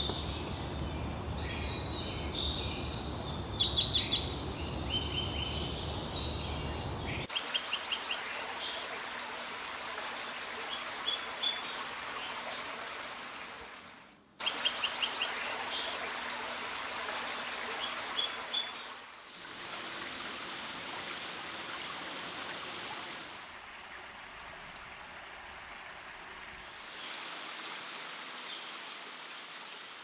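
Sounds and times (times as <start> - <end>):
songbird singing high quick notes: 0.0 - 7.3
steady rushing noise: 0.0 - 7.3.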